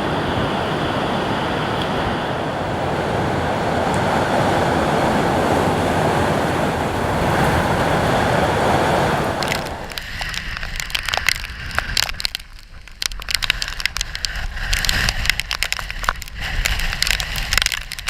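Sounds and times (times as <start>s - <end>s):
low wind rumble: 0.0s - 18.0s
sharp cracks and taps: 9.4s - 18.0s.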